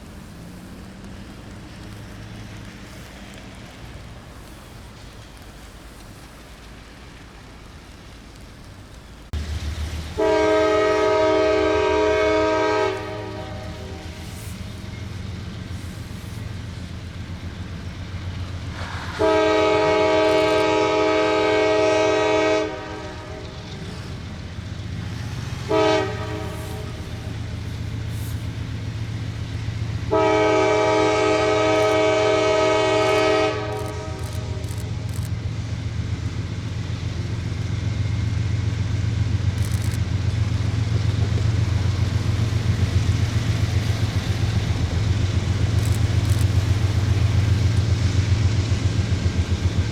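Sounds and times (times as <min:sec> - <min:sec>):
diesel locomotive rumble: 0:00.0 - 0:49.9
locomotive air horn blasts: 0:10.1 - 0:14.8, 0:18.8 - 0:24.2, 0:25.5 - 0:27.5, 0:30.1 - 0:35.3.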